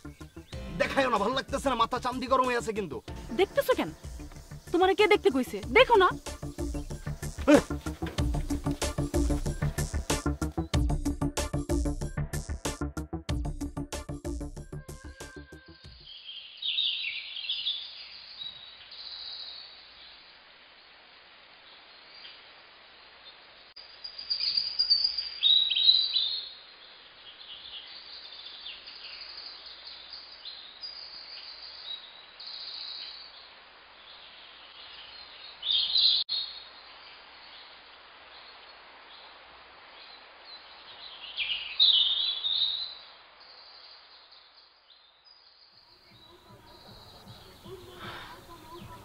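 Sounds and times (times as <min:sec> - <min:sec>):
birds chirping and calling: 0:03.2 - 0:10.8, 0:46.0 - 0:49.0.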